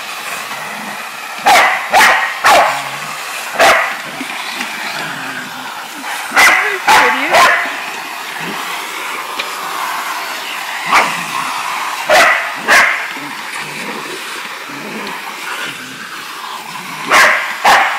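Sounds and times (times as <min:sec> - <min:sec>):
vacuum cleaner running: 0:00.0 - 0:17.9
dog barking: 0:01.4 - 0:02.9, 0:03.6 - 0:04.0, 0:06.3 - 0:07.8, 0:10.9 - 0:11.1, 0:12.1 - 0:13.1, 0:17.1 - 0:17.9.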